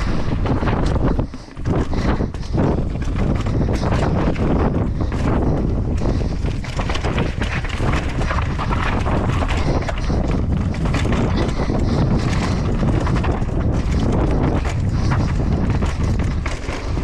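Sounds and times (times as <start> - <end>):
mountain bike rattling over rocks: 0.0 - 17.0
wind buffeting microphone: 0.0 - 17.0.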